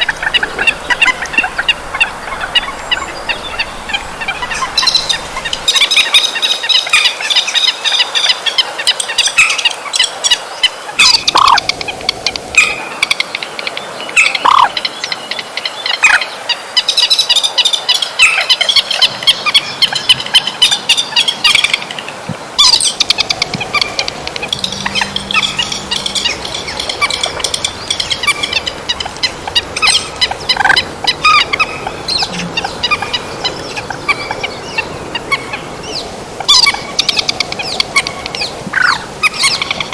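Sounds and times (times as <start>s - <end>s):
high-pitched bird chattering calls: 22.6s - 39.9s.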